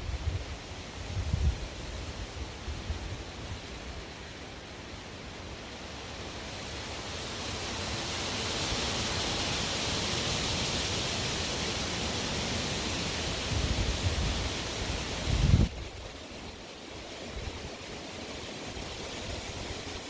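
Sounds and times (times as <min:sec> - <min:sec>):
low rumbling wind buffets: 0:00.0 - 0:03.7, 0:13.3 - 0:16.2
strong wind blowing: 0:00.0 - 0:03.7, 0:13.2 - 0:16.1.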